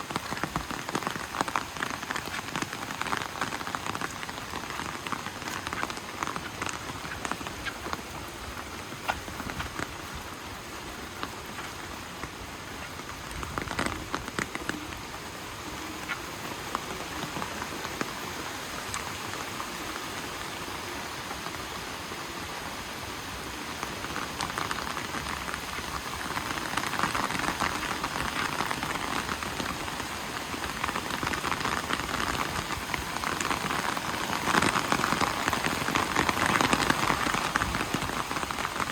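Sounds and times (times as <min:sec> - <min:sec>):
steady rain pattering: 0:00.0 - 0:38.9.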